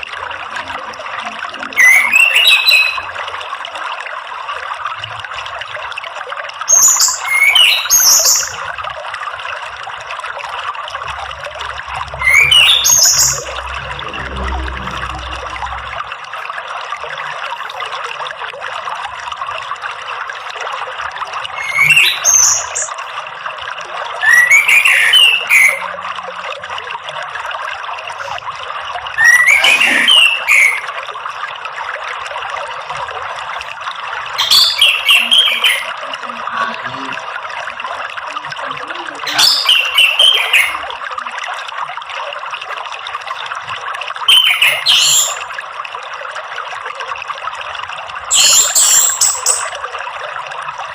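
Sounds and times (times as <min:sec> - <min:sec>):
running water trickling: 0:00.0 - 0:50.9
thrush chirping song: 0:11.3 - 0:16.2.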